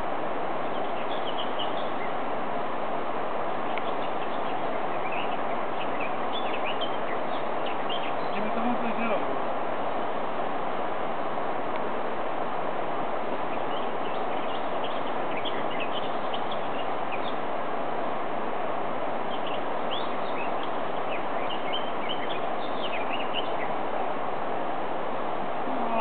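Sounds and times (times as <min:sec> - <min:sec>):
small birds chirping: 0:00.0 - 0:02.3, 0:03.5 - 0:10.1, 0:13.4 - 0:17.6, 0:19.1 - 0:24.0, 0:25.5 - 0:26.0
steady rushing hiss: 0:00.0 - 0:26.0.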